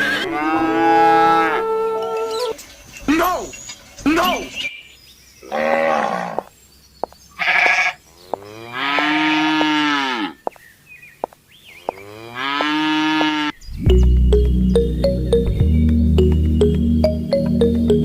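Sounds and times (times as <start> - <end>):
farm animals calling: 0.0 - 4.7, 5.4 - 13.6
cattle lowing: 5.4 - 6.5, 7.3 - 10.5.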